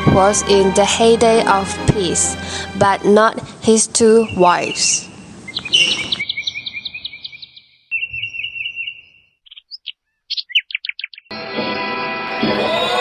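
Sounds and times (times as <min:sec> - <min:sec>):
music: 0:00.0 - 0:04.3, 0:11.3 - 0:13.0
songbirds chirping: 0:03.2 - 0:11.3.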